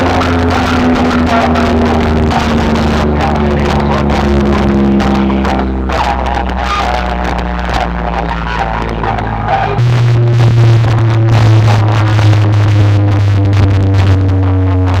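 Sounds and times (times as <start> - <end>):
loud dance music with heavy bass: 0.0 - 15.0.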